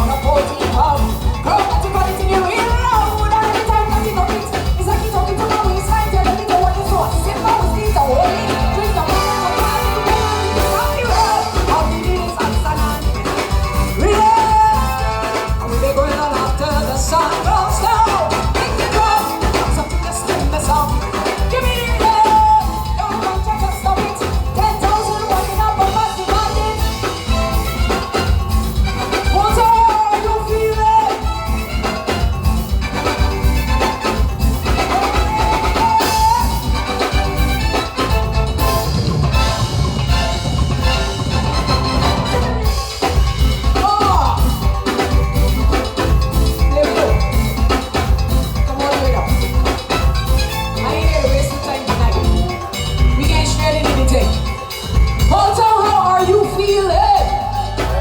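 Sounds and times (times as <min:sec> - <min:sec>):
woman singing: 0:00.0 - 0:27.6, 0:29.3 - 0:31.7, 0:34.7 - 0:37.2, 0:43.6 - 0:44.8, 0:46.0 - 0:50.0, 0:50.8 - 0:58.0
live band playing: 0:00.0 - 0:58.0.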